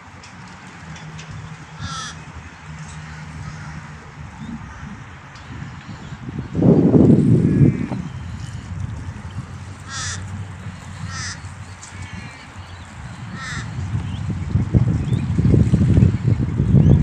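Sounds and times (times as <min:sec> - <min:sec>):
steady low rumble: 0:01.0 - 0:17.0
bird calling: 0:01.8 - 0:02.3, 0:09.3 - 0:14.3.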